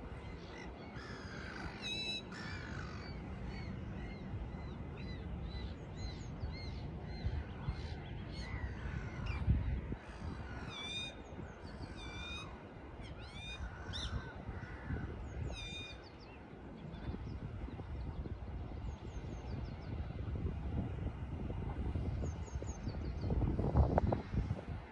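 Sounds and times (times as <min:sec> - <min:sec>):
crows cawing: 0:01.0 - 0:03.1, 0:13.8 - 0:15.2.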